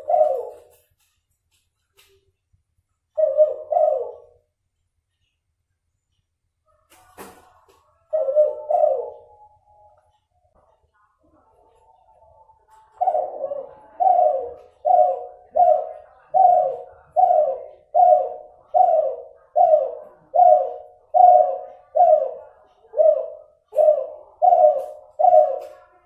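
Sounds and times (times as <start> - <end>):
dove cooing: 0.0 - 0.9, 3.2 - 4.4, 8.1 - 9.6, 12.6 - 26.0.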